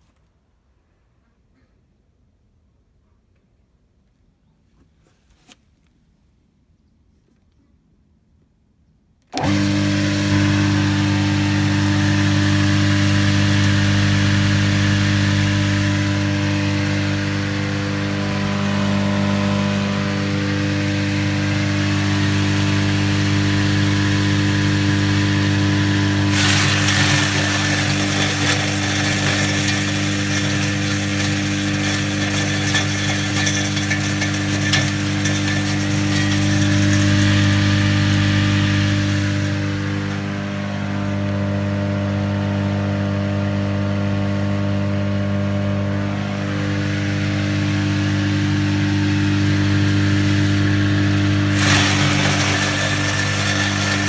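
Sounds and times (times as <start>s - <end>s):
electric motor humming: 9.4s - 54.0s
blades chopping material: 25.9s - 41.0s.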